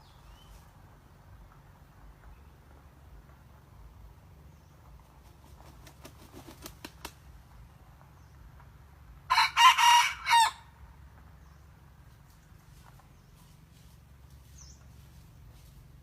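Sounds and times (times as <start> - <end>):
rooster crowing: 9.3 - 10.7.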